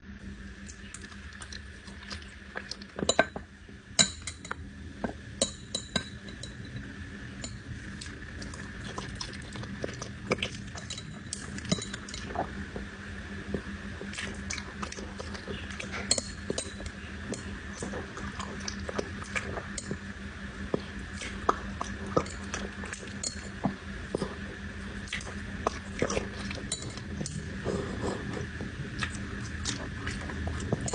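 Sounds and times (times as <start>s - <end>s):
faint steady hum: 0.0s - 30.9s
dog eating from a bowl: 0.7s - 20.0s, 20.7s - 30.9s.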